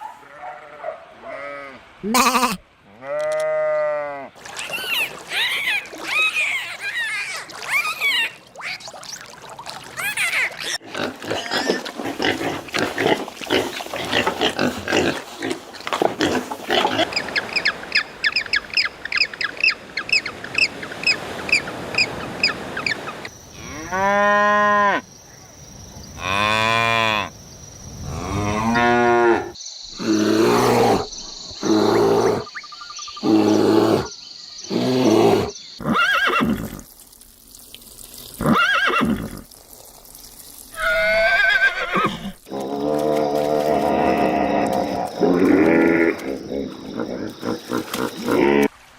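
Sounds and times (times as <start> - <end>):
animal grunting calls: 41.9 - 48.7.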